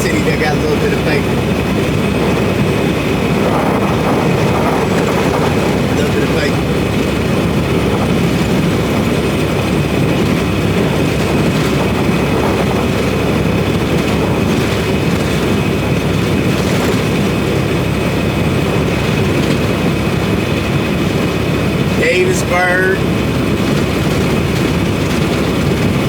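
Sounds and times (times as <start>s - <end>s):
road noise: 0.0s - 26.0s
truck engine drone: 0.0s - 26.0s.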